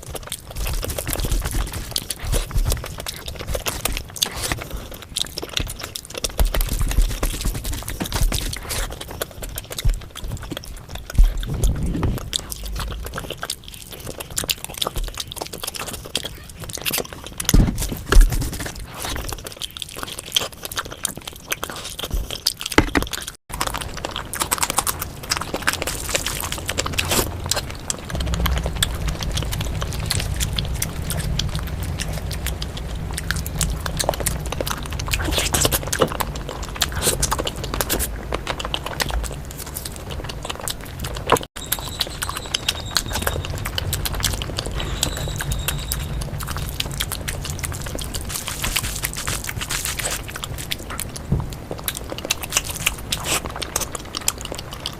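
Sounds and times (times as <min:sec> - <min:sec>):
wet chewing: 0:00.0 - 0:54.9
low hum: 0:10.0 - 0:15.2, 0:23.8 - 0:53.2.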